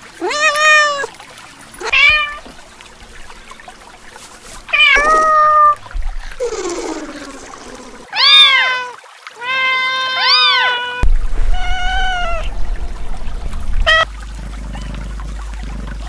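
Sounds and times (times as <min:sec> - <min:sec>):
kittens meowing: 0:01.8 - 0:02.5, 0:04.7 - 0:07.5, 0:08.1 - 0:12.5, 0:13.9 - 0:14.1.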